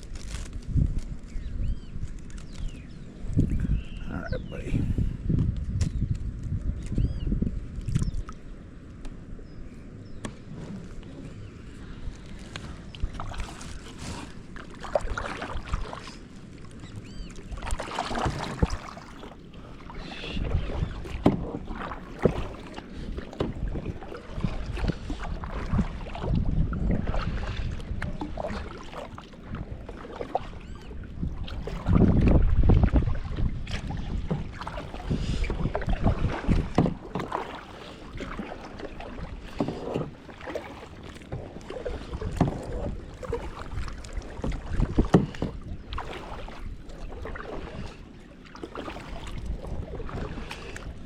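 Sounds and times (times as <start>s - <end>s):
paddle splashing in water: 10.1s - 51.0s
paddle knocking against hull: 17.0s - 51.0s.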